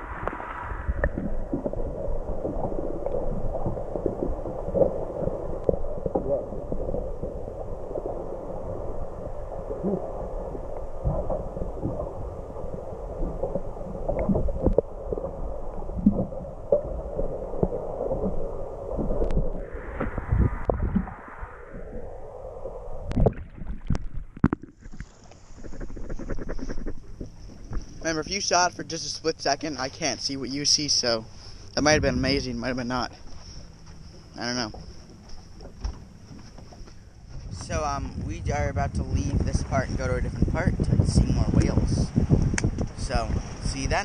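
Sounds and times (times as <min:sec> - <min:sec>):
low rumble: 0:00.0 - 0:44.0
muffled water sloshing: 0:00.0 - 0:44.0
knocks and thumps: 0:35.6 - 0:37.7.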